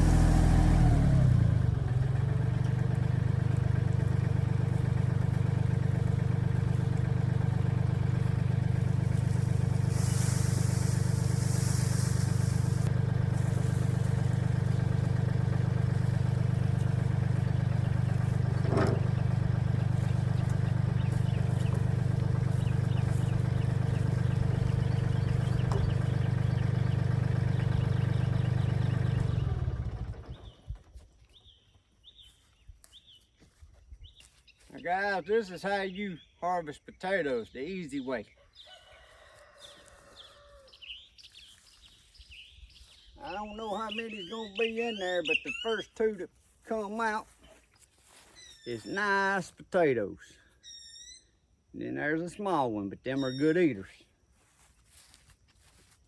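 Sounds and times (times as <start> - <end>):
diesel tractor engine running: 0.0 - 31.0
brief hiss: 9.9 - 12.9.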